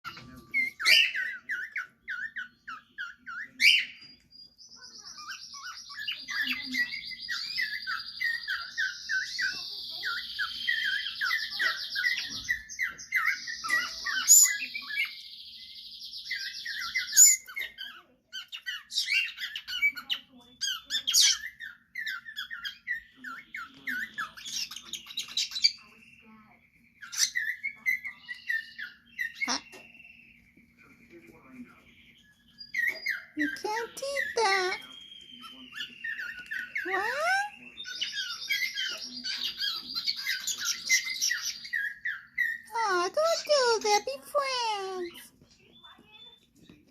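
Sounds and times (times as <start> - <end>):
cockatiel chirping: 0.0 - 15.2, 16.2 - 26.4, 27.0 - 30.5, 32.3 - 42.7.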